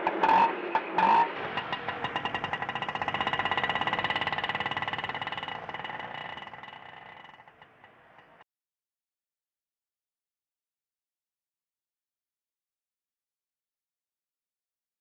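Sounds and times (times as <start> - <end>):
auto rickshaw engine rattle: 0.0 - 8.4.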